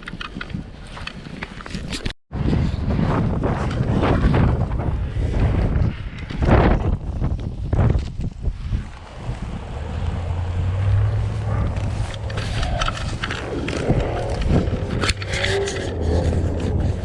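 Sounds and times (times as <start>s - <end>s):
wind buffeting microphone: 0.0s - 17.0s
car engine rumble: 8.6s - 17.0s.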